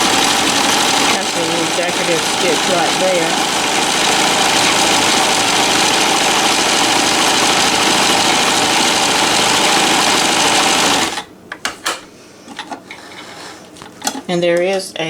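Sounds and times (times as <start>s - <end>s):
sewing machine running: 0.0s - 11.3s.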